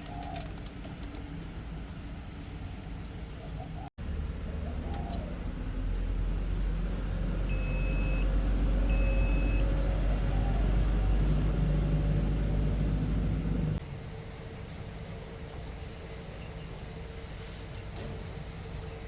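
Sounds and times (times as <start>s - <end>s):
vehicle engine rumble: 0.0s - 19.0s
short electronic beeps: 7.5s - 8.3s, 8.9s - 9.7s.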